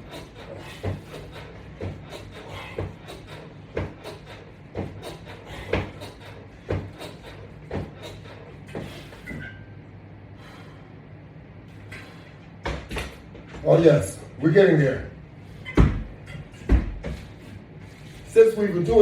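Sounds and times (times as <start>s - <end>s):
exercise equipment knocking and creaking: 0.0s - 9.7s, 12.0s - 13.8s, 15.6s - 17.5s, 18.8s - 19.0s
steady low hum: 0.0s - 19.0s.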